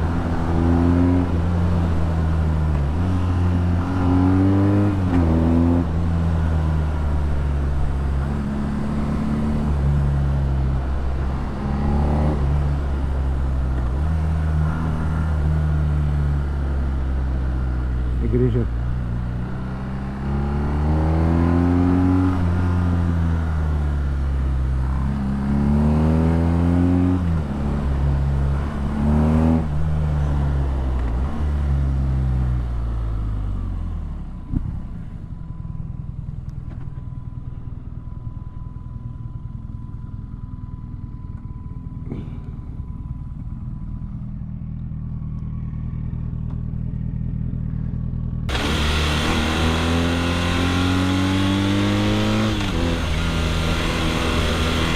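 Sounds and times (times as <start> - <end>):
motorcycle engine accelerating: 39.1 - 54.9.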